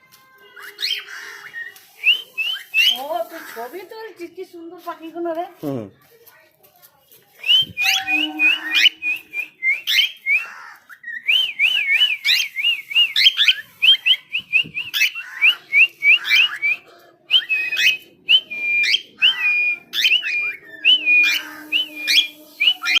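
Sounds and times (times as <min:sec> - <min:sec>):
bird whistling calls: 0:00.6 - 0:03.6, 0:07.4 - 0:23.0.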